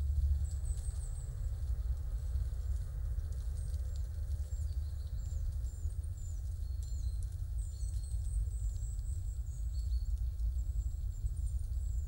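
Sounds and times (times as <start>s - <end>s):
steady low rumble: 0.0s - 4.4s.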